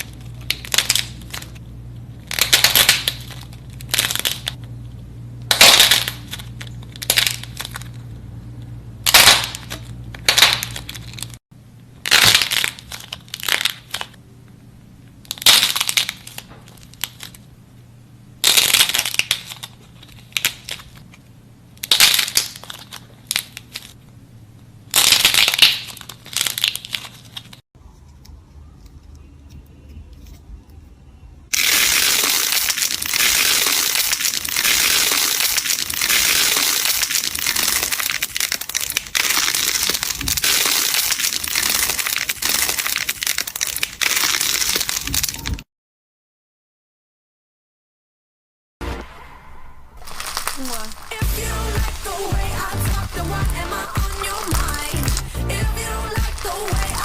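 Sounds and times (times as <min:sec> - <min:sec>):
crunchy slime crackling: 0:00.0 - 0:01.6, 0:02.2 - 0:04.6, 0:05.5 - 0:08.2, 0:09.0 - 0:11.4, 0:12.0 - 0:14.2, 0:15.2 - 0:17.5, 0:18.4 - 0:21.1, 0:21.7 - 0:24.0, 0:24.9 - 0:27.6, 0:31.5 - 0:45.6, 0:50.0 - 0:57.0.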